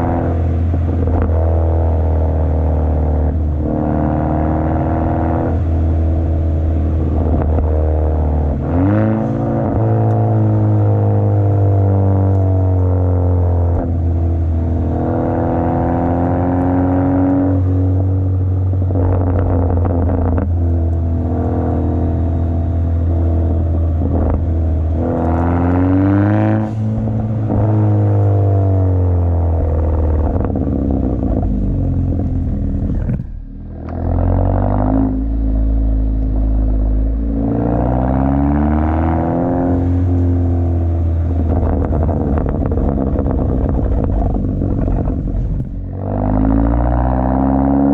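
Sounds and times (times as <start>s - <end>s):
car engine droning while driving: 0.0s - 47.9s.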